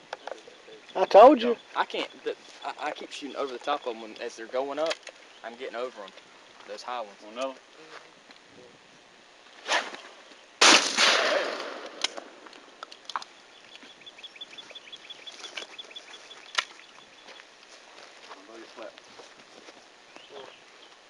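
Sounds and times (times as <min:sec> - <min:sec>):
shotgun shot: 0:10.6 - 0:12.3.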